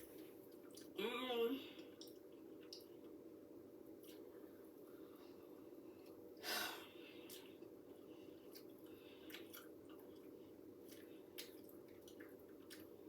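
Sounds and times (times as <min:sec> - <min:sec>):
faint chewing of candy: 0:00.0 - 0:01.0, 0:03.9 - 0:06.4, 0:07.0 - 0:13.0
faint steady hum: 0:00.0 - 0:13.0.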